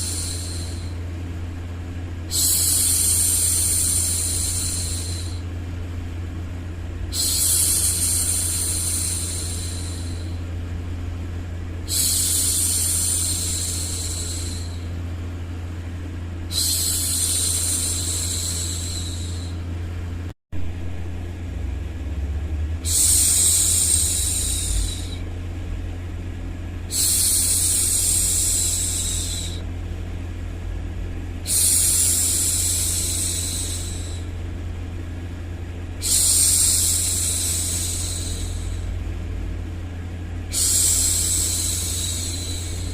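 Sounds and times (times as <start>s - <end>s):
low rumbling white noise: 0.0s - 42.9s
woman shushing: 22.8s - 25.3s.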